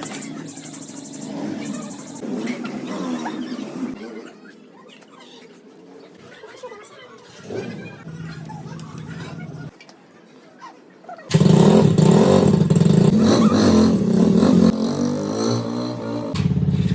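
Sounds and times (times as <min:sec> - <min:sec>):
motorcycle engine running: 0:11.3 - 0:16.9.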